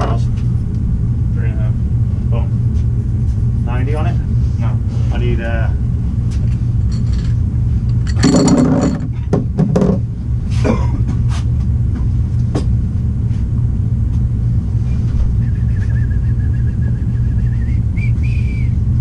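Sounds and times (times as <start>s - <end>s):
low hum: 0.0s - 19.0s
metallic clanks of pipe and tools: 6.4s - 9.9s.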